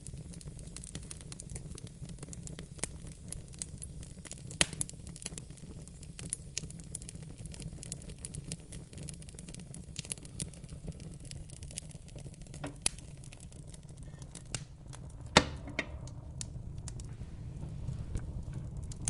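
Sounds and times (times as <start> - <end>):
fire crackling: 0.0 - 19.0
fire popping: 0.0 - 19.0
low rumble: 13.8 - 19.0.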